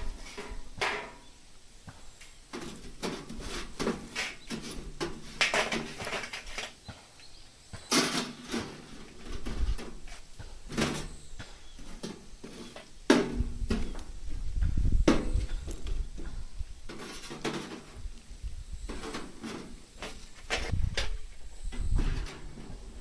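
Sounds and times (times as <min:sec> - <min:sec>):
objects knocking and clattering: 0:02.5 - 0:06.8.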